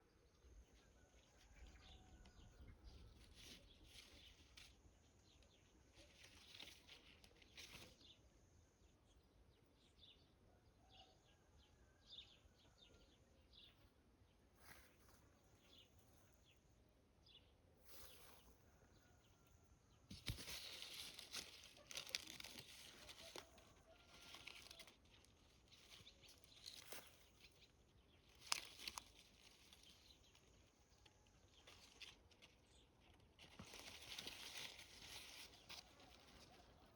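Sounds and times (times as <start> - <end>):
small birds chirping: 0.0 - 11.1, 12.1 - 36.9
rustling: 2.5 - 8.1, 20.1 - 36.9.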